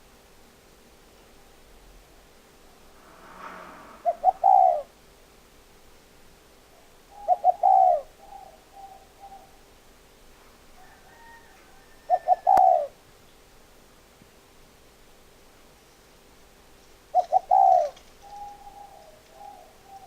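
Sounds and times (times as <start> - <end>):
dove cooing: 7.1 - 9.6, 12.0 - 13.0, 17.1 - 20.0.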